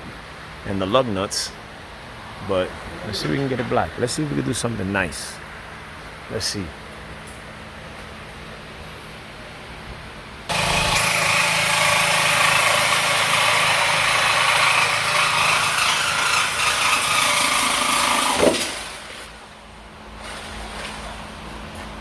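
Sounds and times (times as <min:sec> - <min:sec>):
power tool cutting steel pipe: 0:10.5 - 0:19.3.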